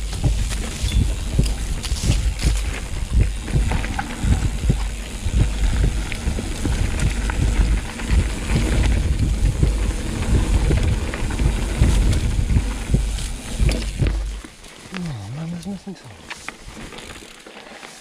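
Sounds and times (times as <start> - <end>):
wind buffeting microphone: 0.0 - 14.4
bike knocks and rattles: 0.0 - 14.9
tyres rumbling over dirt: 0.0 - 18.0.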